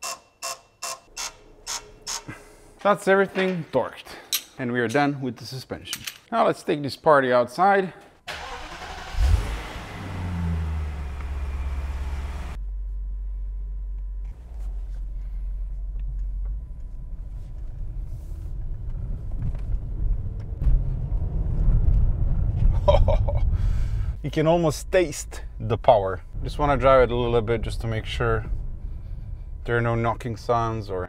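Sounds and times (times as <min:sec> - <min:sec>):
car driving off: 0:08.3 - 0:12.6, 0:19.0 - 0:23.0
car engine starting and revving: 0:08.3 - 0:12.6, 0:19.2 - 0:22.8.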